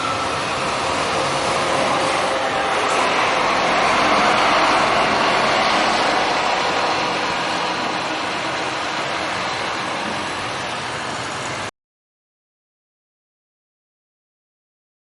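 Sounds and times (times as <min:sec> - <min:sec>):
coach engine and tyre noise: 0:00.0 - 0:11.7.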